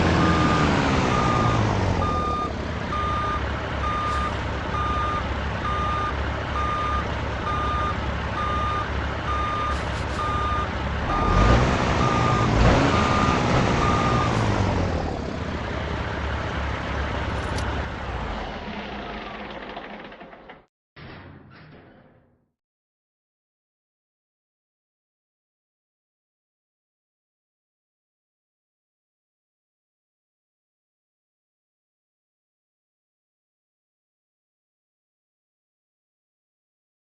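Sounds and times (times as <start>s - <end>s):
diesel engine running: 0.0s - 20.7s
backup alarm beeping: 0.2s - 14.4s.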